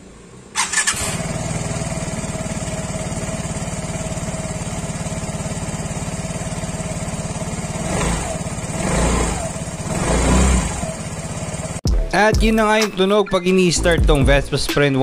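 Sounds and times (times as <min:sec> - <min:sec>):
scooter engine starting and idling: 0:00.0 - 0:11.8.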